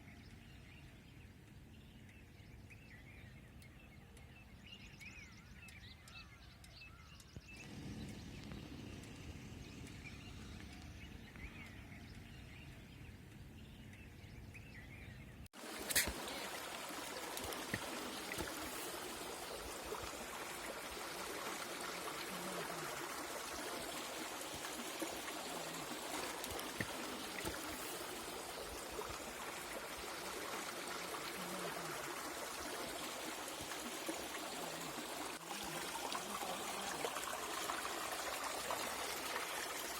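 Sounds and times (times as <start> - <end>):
low rumble: 7.6 - 11.3
rush of running water: 15.6 - 39.9.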